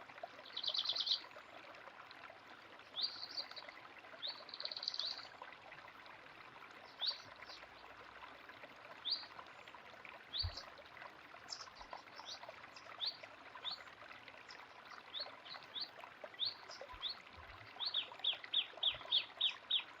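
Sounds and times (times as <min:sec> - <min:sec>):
running water: 0:00.0 - 0:20.0
small birds chirping: 0:00.4 - 0:01.3, 0:03.0 - 0:03.6, 0:04.2 - 0:05.3, 0:06.8 - 0:07.6, 0:09.0 - 0:09.3, 0:10.3 - 0:10.7, 0:11.5 - 0:13.8, 0:17.8 - 0:20.0.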